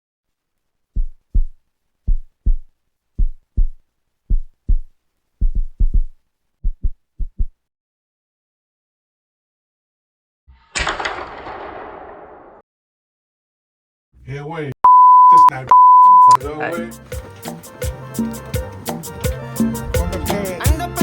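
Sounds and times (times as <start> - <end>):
heartbeat thumps: 1.0 - 7.6.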